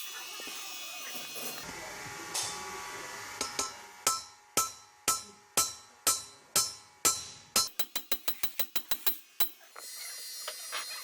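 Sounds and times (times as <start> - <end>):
hammer tapping metal: 3.4 - 9.6.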